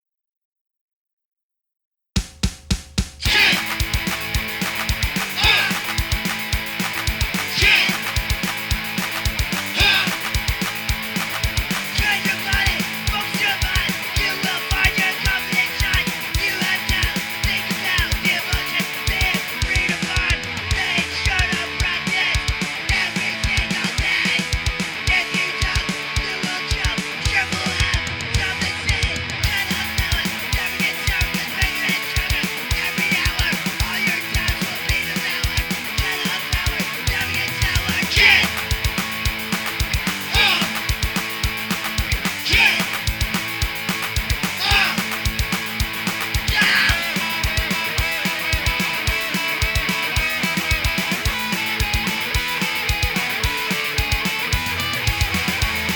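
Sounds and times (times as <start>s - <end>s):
fast kick drum: 2.2s - 24.9s, 29.4s - 55.9s
punk rock band playing: 3.2s - 55.9s.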